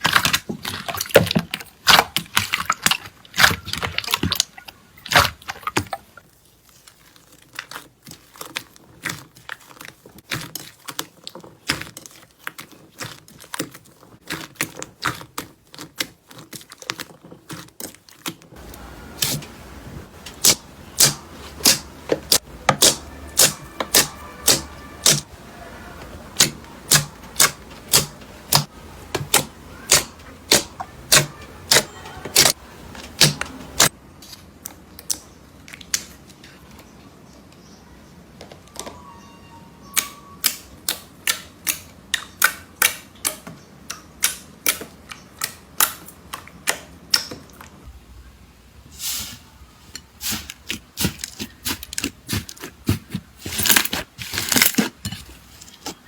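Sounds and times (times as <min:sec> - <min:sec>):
slime crackling and popping: 0:20.4 - 0:25.2
low steady hum: 0:47.9 - 0:50.1.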